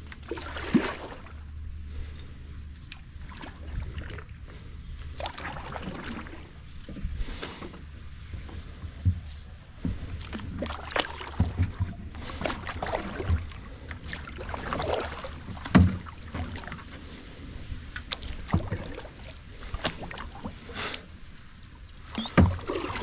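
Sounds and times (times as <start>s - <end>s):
paddle splashing in water: 0.0s - 2.2s, 2.8s - 23.0s
thumps against kayak: 6.8s - 13.5s, 15.4s - 16.7s, 18.0s - 19.0s, 22.1s - 23.0s.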